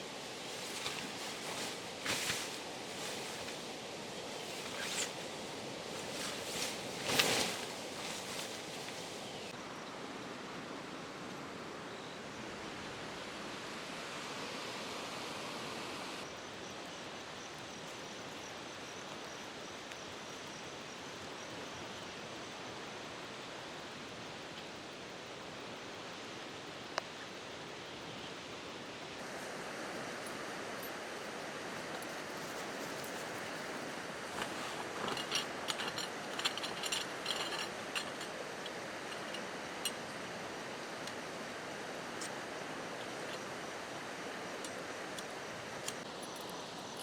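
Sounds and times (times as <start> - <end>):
forest ambience hiss: 0.0 - 47.0
short rustles and knocks: 6.0 - 9.0, 31.8 - 40.2.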